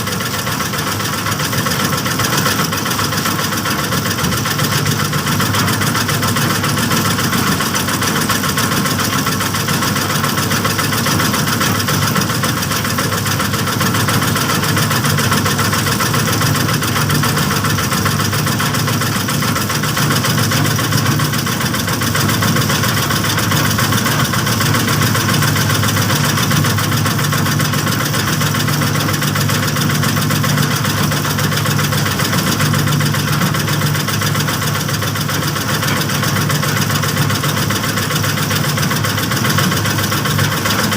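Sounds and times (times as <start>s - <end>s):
small stationary engine running: 0.0s - 40.9s.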